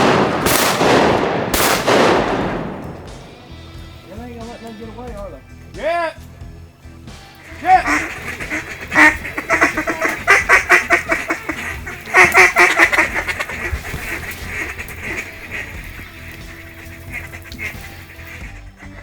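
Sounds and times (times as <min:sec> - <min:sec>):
duck quacking: 0:07.3 - 0:19.0.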